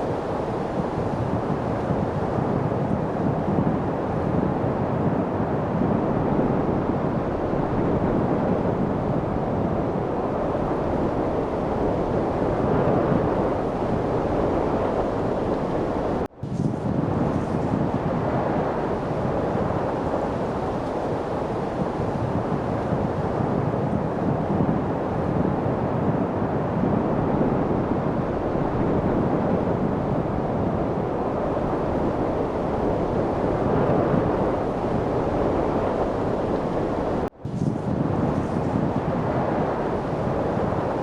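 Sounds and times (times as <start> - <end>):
steady wind rushing: 0.0 - 41.0.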